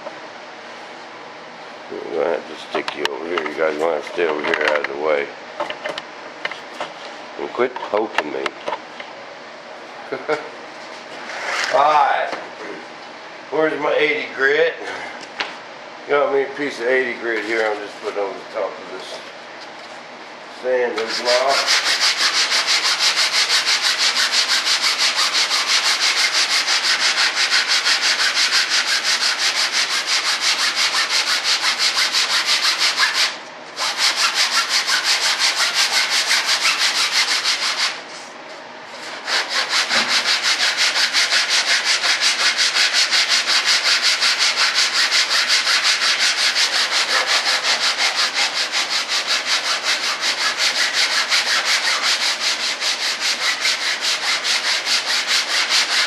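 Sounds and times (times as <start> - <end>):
hand sanding wood: 20.9 - 38.2, 38.9 - 56.0.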